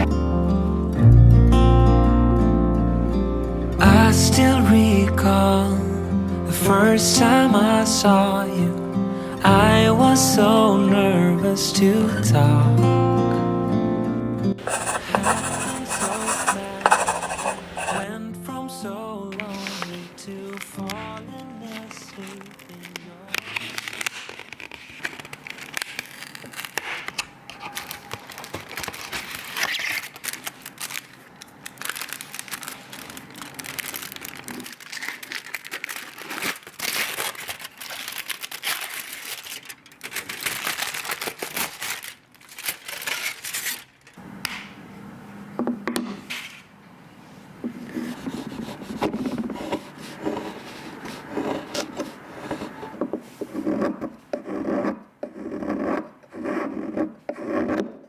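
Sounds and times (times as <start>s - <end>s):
rustling and crinkling: 14.6s - 18.0s, 19.4s - 44.2s, 47.3s - 54.3s.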